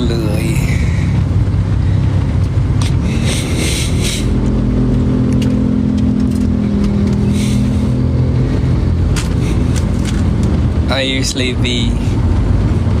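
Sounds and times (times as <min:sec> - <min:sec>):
car engine and road hum: 0:00.0 - 0:13.0.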